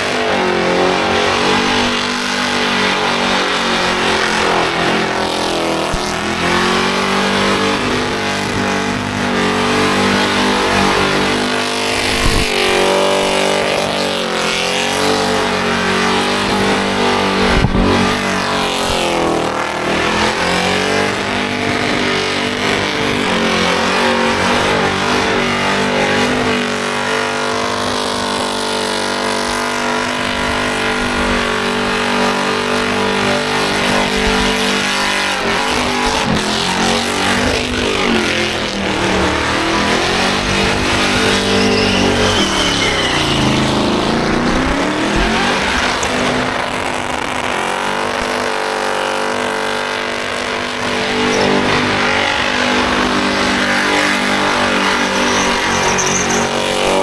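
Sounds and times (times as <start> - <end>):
car engine at high revs: 0.0 - 57.0
tyres spinning: 52.8 - 57.0.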